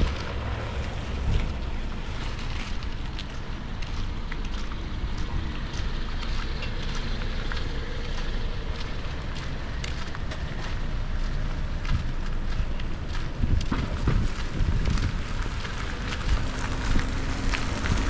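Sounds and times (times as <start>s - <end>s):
wind rumbling on microphone: 0.0s - 18.0s
rain: 13.7s - 18.0s.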